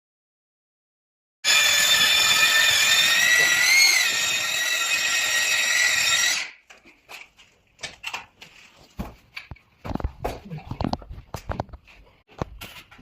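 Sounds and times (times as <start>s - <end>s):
power tool motor whining: 1.4s - 6.5s.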